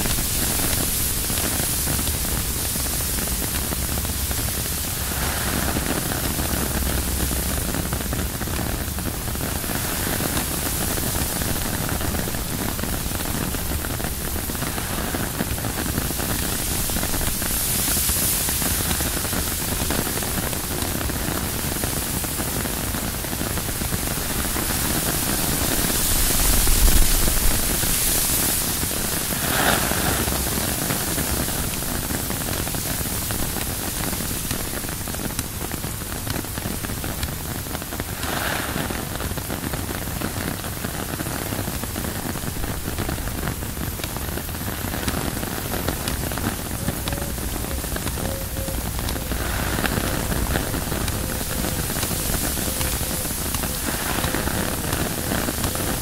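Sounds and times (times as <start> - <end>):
rain on tent fabric: 0.0 - 56.0
wind gust: 2.6 - 20.3, 23.2 - 32.1, 46.6 - 56.0.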